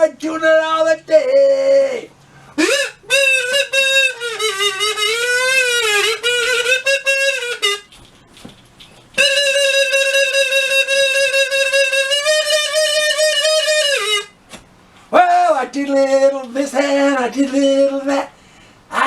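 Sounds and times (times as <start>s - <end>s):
reedy wind instrument melody: 2.4s - 14.4s.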